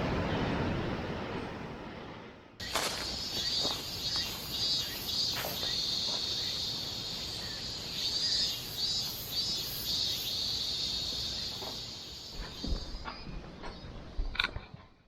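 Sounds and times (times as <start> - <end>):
insects chirping: 2.6 - 14.3.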